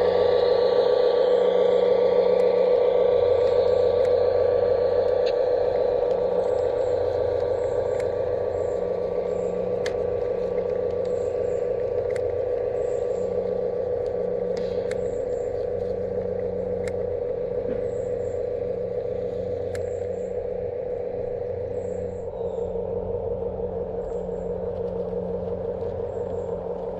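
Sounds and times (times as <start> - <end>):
model locomotive motor hum: 0.0 - 26.9
sharp clicks: 3.4 - 18.4, 19.6 - 20.4.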